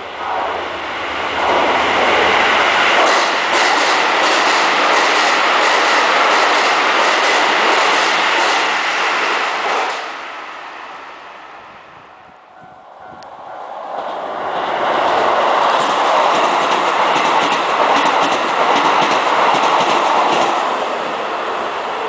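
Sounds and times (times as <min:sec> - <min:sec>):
train running noise: 0:00.0 - 0:22.0
wheels clacking over rail joints: 0:02.9 - 0:10.2, 0:13.9 - 0:20.9.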